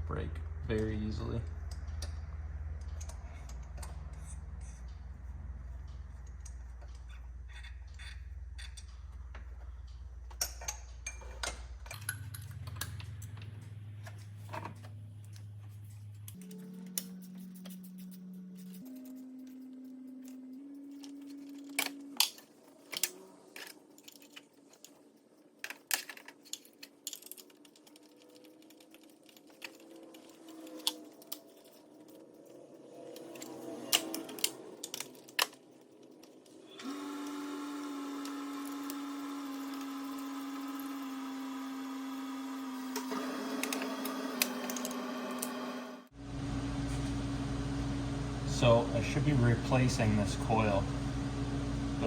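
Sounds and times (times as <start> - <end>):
metallic clicks of hand tools: 20.2 - 37.0.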